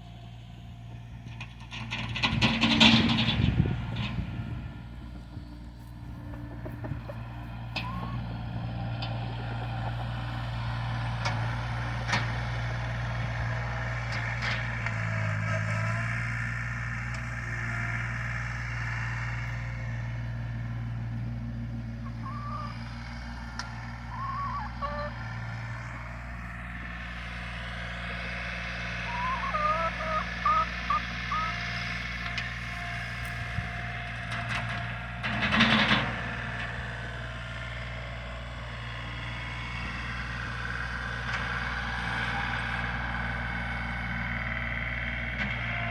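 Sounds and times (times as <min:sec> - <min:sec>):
engine running steadily: 0:00.0 - 0:45.9
bird chirps: 0:22.1 - 0:22.7, 0:29.1 - 0:31.5.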